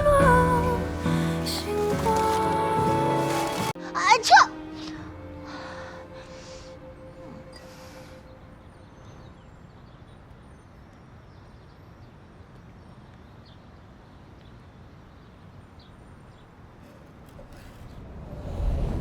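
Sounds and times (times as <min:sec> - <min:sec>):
low rumble: 0:17.4 - 0:19.0.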